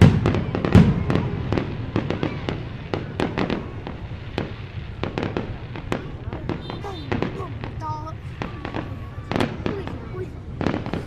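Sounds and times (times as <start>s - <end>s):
fireworks crackle: 0.0s - 11.0s
fireworks cracks and bangs: 0.0s - 11.0s
heavy fireworks booms: 0.0s - 11.0s.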